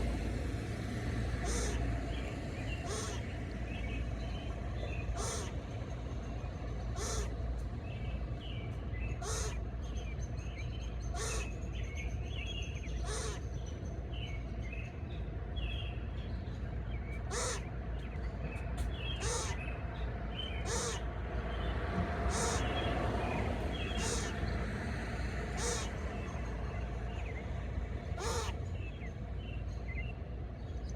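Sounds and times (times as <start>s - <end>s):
steady low rumble: 0.0s - 30.9s
bird harsh call: 1.4s - 1.9s, 2.7s - 3.3s, 5.1s - 5.6s, 7.0s - 7.3s, 9.1s - 9.6s, 11.1s - 11.6s, 17.3s - 17.7s, 19.1s - 19.7s, 20.6s - 21.0s, 22.3s - 22.8s, 23.8s - 24.4s, 25.6s - 26.4s, 28.2s - 28.6s.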